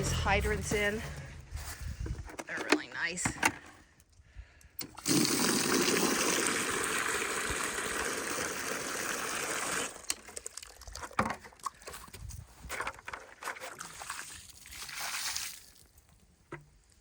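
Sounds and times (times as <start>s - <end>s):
water running from hydrant: 5.0s - 11.0s.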